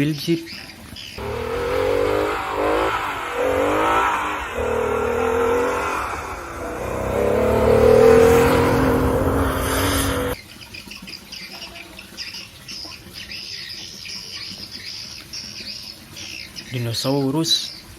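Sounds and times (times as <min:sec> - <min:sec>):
car engine revving: 0:01.2 - 0:10.4.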